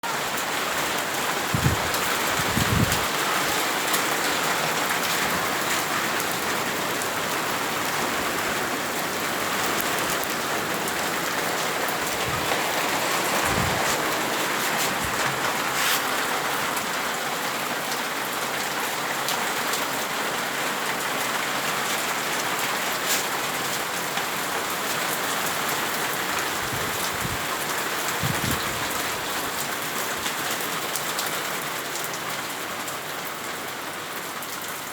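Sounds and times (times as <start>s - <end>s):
heavy rain hiss: 0.1s - 17.1s, 21.2s - 25.3s
hailstones clicking: 0.3s - 16.9s.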